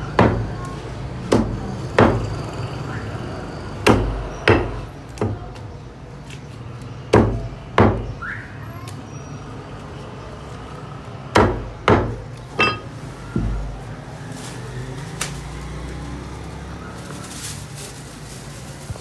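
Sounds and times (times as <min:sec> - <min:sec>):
knife chopping on a board: 0:11.4 - 0:13.6.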